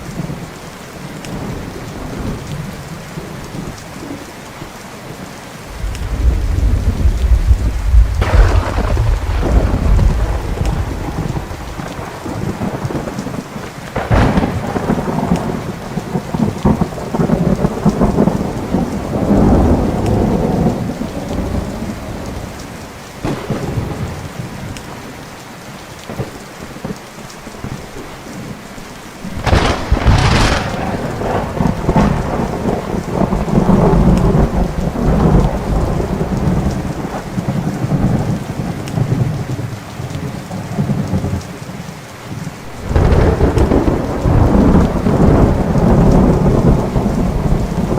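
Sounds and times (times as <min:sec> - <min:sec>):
steady rain: 0:00.0 - 0:47.9
sharp thunder crack: 0:05.7 - 0:13.4, 0:14.0 - 0:21.8, 0:23.2 - 0:24.3, 0:29.2 - 0:38.2, 0:42.6 - 0:47.9
thunder rumbling: 0:05.7 - 0:25.1, 0:29.2 - 0:47.9.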